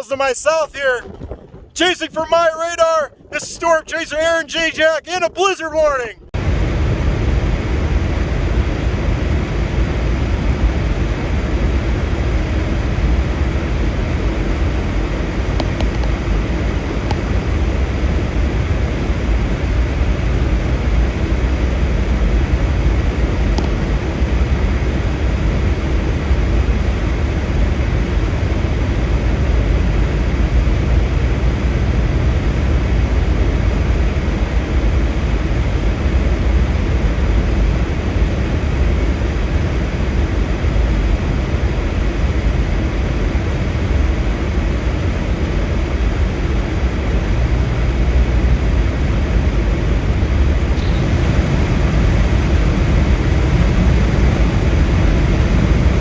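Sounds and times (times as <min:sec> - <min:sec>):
vehicle low rumble: 0:00.0 - 0:02.2, 0:06.2 - 0:56.0
road noise: 0:47.2 - 0:56.0
wind hissing: 0:50.7 - 0:56.0.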